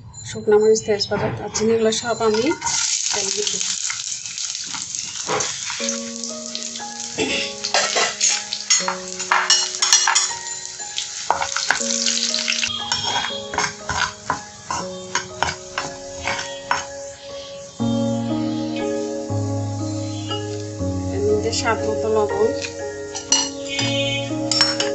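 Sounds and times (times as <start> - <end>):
spices sizzling in hot oil: 2.0 - 24.9
spatula stirring in pan: 2.2 - 7.0, 7.6 - 10.3, 10.9 - 17.0
background music with held notes: 5.3 - 24.9.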